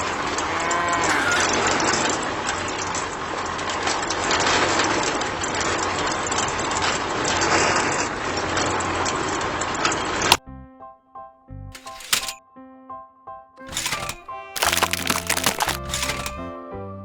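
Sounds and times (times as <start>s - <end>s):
gritty rattle of small clicks: 11.8s - 12.4s, 13.7s - 16.4s.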